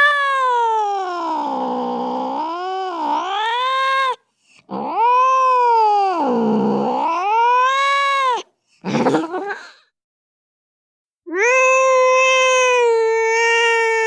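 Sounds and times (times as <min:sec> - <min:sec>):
recorded cat yowling: 0:00.0 - 0:08.5, 0:11.3 - 0:14.0.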